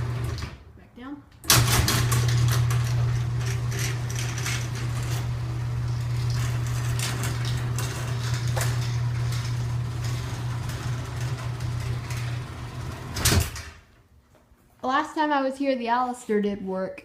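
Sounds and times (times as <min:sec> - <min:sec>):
garage door opener motor hum: 0:00.0 - 0:00.7, 0:01.4 - 0:13.9.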